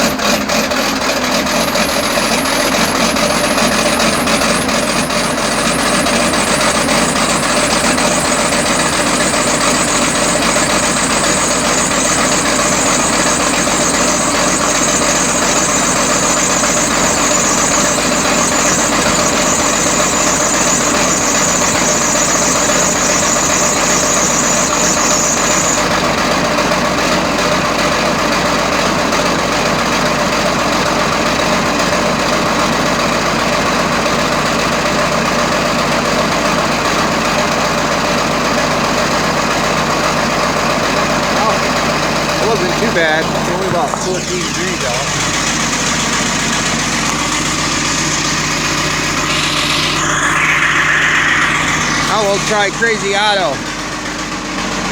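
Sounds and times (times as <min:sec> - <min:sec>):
machine engine idling: 0:00.0 - 0:27.0, 0:40.8 - 0:54.9
high whine: 0:01.5 - 0:26.5, 0:41.2 - 0:54.6.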